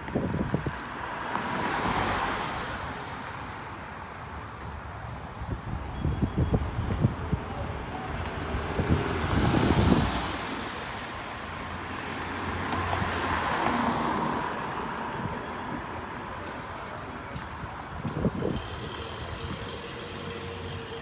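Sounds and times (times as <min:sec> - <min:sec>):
engine and tyre noise: 0:00.0 - 0:21.0.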